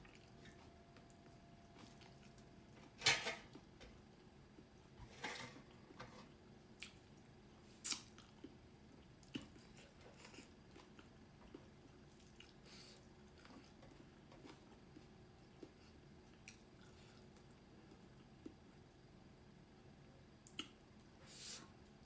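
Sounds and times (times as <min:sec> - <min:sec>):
soft chewing: 0:00.0 - 0:02.6, 0:05.7 - 0:19.1, 0:20.4 - 0:21.2.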